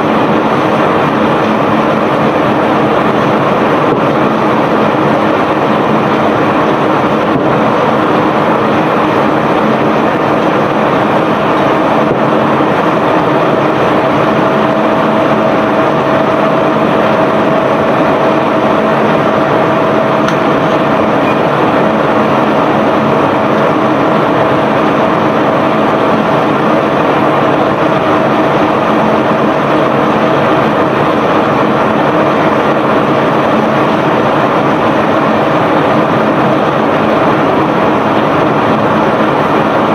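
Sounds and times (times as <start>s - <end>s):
unloading machinery running: 0.0s - 39.9s
higher mechanical tone: 4.7s - 34.4s.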